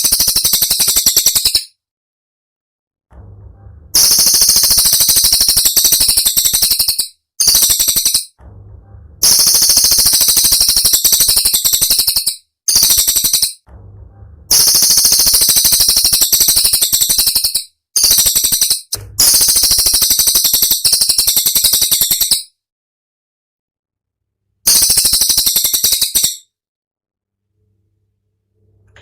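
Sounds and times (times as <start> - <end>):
songbird rattling trills: 4.0 - 8.4, 9.2 - 13.6, 14.5 - 22.4, 24.7 - 26.4.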